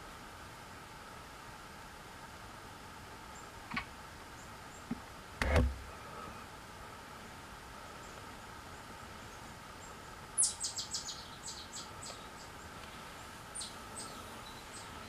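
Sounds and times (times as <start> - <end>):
faint woodland background noise: 0.0 - 15.0
bird chirping: 9.2 - 15.0.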